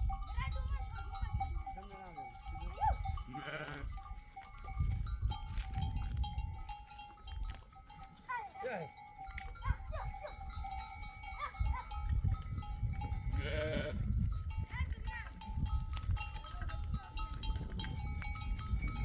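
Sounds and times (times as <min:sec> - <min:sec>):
neck bells ringing: 0:00.0 - 0:19.0
sheep bleating: 0:02.8 - 0:04.0, 0:13.3 - 0:14.0.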